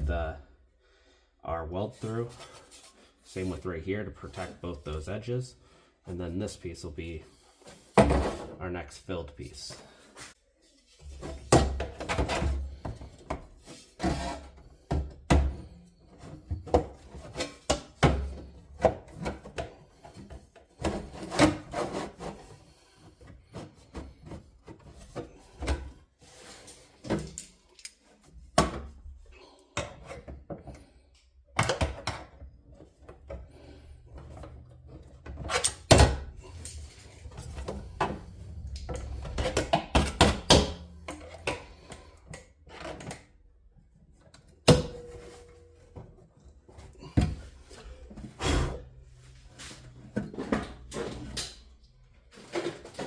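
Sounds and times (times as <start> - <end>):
metal scraping: 33.8 - 42.2
low hum: 36.3 - 41.6.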